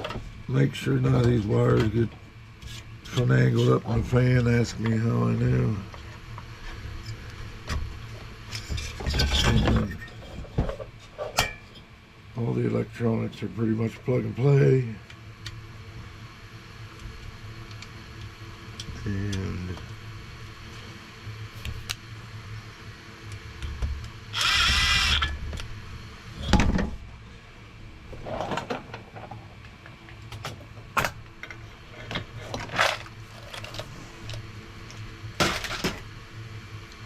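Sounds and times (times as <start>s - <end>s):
cordless drill whirring: 24.3s - 25.4s.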